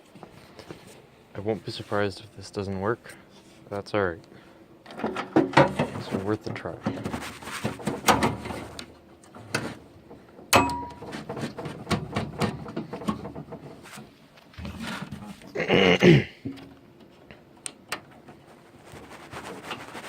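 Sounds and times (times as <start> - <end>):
computer hardware clicks and knocks: 7.8 - 13.7.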